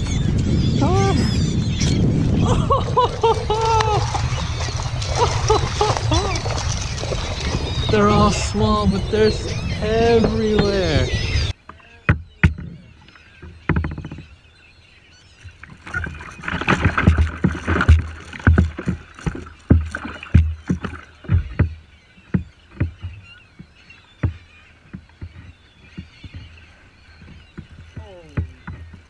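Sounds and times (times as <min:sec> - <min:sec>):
water splashing: 0:02.3 - 0:14.3, 0:15.4 - 0:29.0
knocks on kayak hull: 0:16.6 - 0:26.5.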